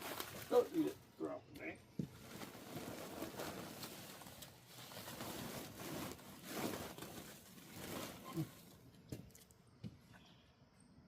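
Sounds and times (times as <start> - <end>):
scratchy rustling: 2.2 - 8.7.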